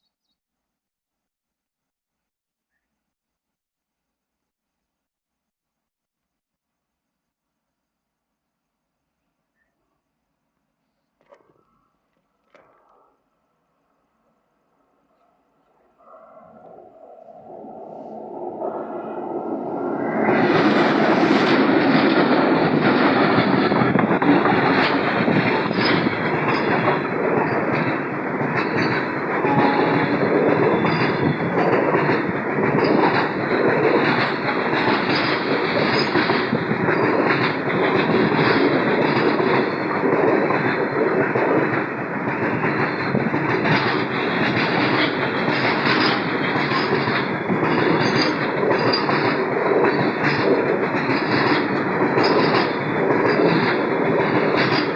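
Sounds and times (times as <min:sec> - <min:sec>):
train rumbling: 0:12.5 - 0:54.9
wheels clicking over rail joints: 0:19.4 - 0:54.9.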